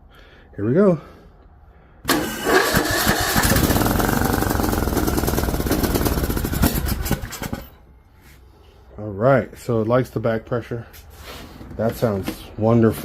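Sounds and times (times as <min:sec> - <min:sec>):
lawn tractor engine running: 0:02.1 - 0:07.8.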